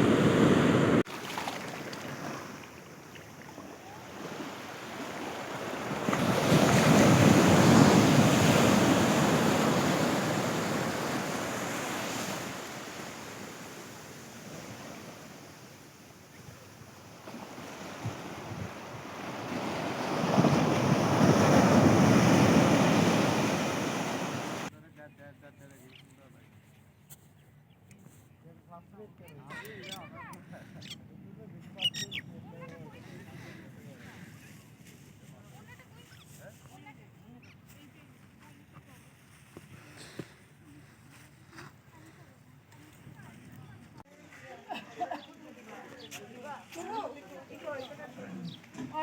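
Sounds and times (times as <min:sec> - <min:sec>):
surf breaking on a beach: 0:00.0 - 0:24.7
wind on microphone: 0:16.5 - 0:24.7.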